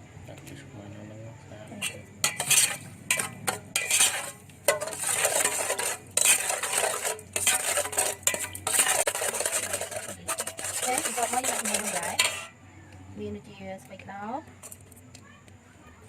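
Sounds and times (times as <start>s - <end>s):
spoon stirring in a bowl: 1.8s - 12.6s.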